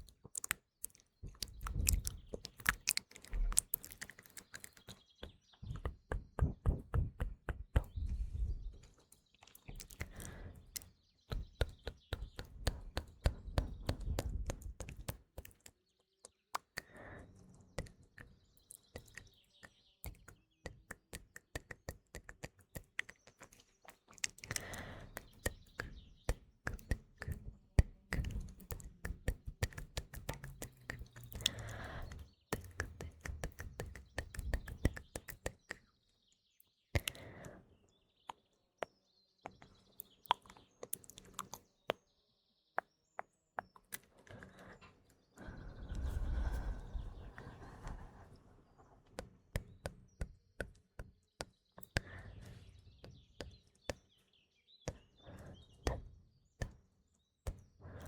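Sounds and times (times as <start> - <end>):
wet mouth clicks and pops: 0.0 - 5.1, 9.4 - 17.0, 17.8 - 35.9, 37.0 - 37.4, 39.5 - 42.0
faint birdsong: 0.0 - 58.0.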